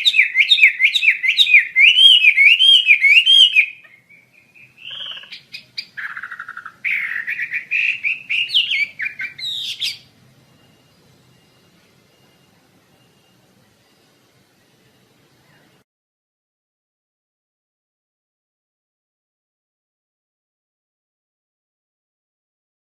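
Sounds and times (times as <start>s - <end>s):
songbird singing: 0.0s - 15.8s.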